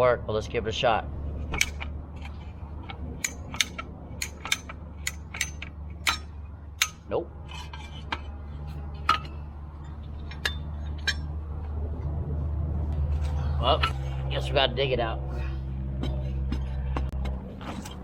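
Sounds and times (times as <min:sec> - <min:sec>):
truck engine running: 0:00.0 - 0:18.0
metallic clinks and clicks: 0:01.5 - 0:08.3.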